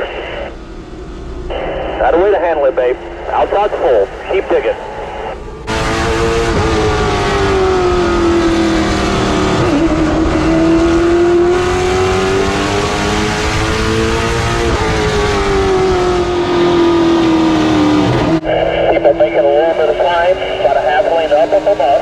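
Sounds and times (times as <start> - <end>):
race car engine at speed: 0.0 - 22.0.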